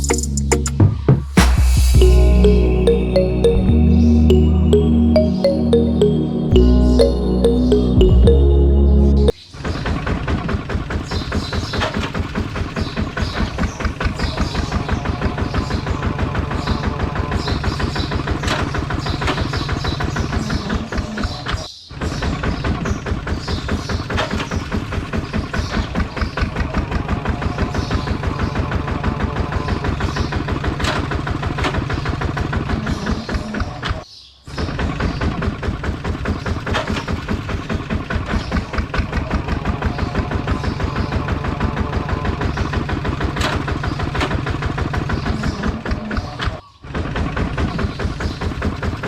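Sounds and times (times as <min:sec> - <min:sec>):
small diesel engine chugging: 0:35.5 - 0:46.0.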